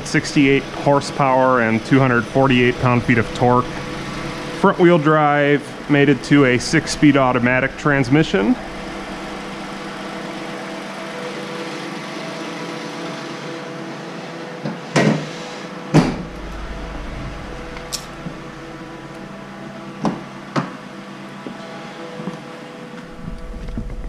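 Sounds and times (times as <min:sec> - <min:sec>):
car engine idling: 0:00.0 - 0:12.2, 0:16.0 - 0:20.6, 0:23.0 - 0:24.0.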